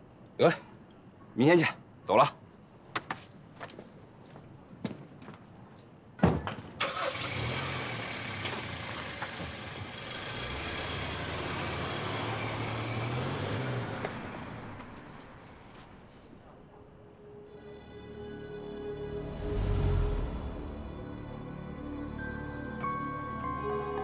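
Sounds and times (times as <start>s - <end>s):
car engine pulling away: 6.8s - 16.3s, 19.1s - 22.0s
road noise: 6.8s - 17.0s, 18.6s - 22.2s.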